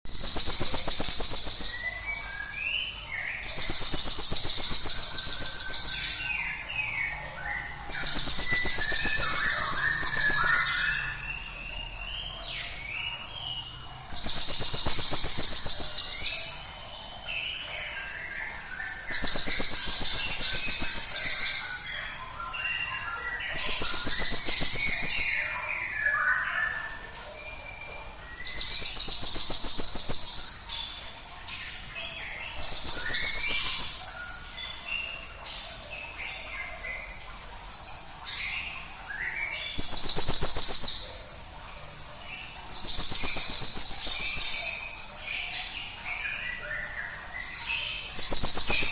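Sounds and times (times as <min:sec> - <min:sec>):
high-pitched bird trills: 0:07.9 - 0:11.2.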